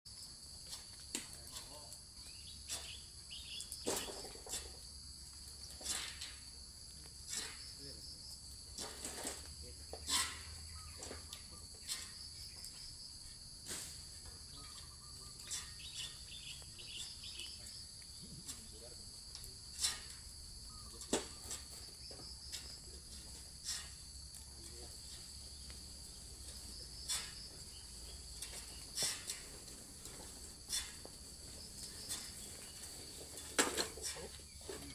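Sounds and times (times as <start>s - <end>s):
insects droning: 0.1s - 34.9s
short knocks and rustles: 3.6s - 4.9s, 18.2s - 34.9s.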